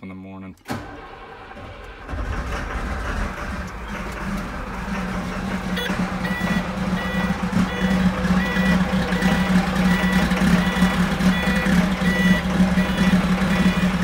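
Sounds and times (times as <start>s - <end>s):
diesel engine running: 0.7s - 14.0s
high-pitched warning alarm beeping: 5.8s - 14.0s.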